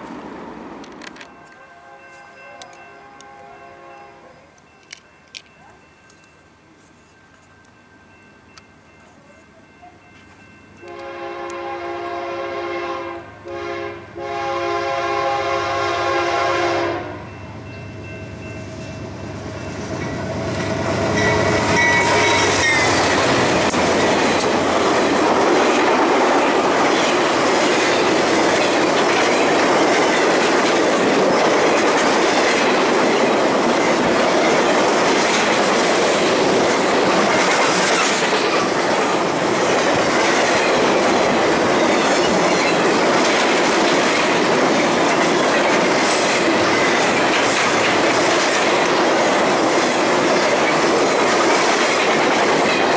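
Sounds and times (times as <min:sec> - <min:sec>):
train horn: 0:01.2 - 0:04.5, 0:10.8 - 0:17.4, 0:20.8 - 0:23.2
train wheels clattering on rails: 0:18.0 - 0:52.9.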